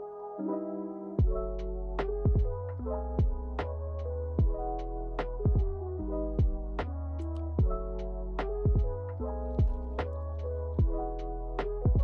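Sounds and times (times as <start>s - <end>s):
keyboard chords: 0.0s - 12.0s
bass line: 1.2s - 12.0s.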